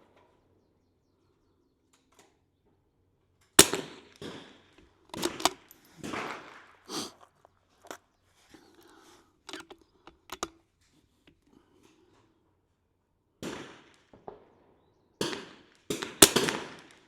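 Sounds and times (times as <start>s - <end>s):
rifle shot: 3.6s - 4.6s, 5.2s - 6.7s, 15.2s - 17.0s
metallic bolt clicks: 5.1s - 5.9s, 8.7s - 10.6s.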